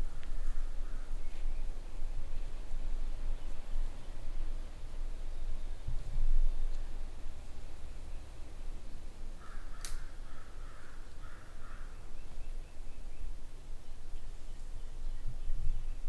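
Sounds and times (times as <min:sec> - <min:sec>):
low wind rumble: 0:00.0 - 0:16.0
crow cawing: 0:09.4 - 0:12.0
sharp click: 0:09.8 - 0:10.0.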